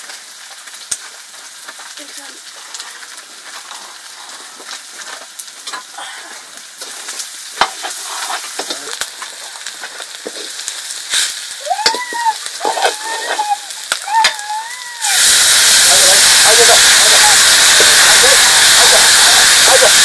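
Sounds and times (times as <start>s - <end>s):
food sizzling in a pan: 0.0s - 20.0s
utensil scraping a pan: 7.6s - 9.3s.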